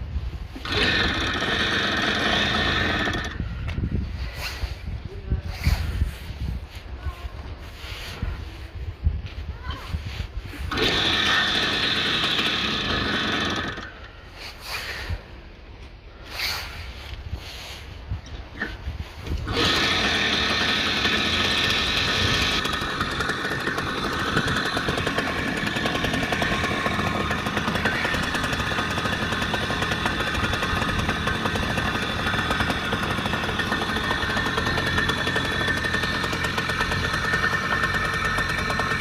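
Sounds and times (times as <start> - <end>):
motorcycle engine running: 19.4 - 39.0.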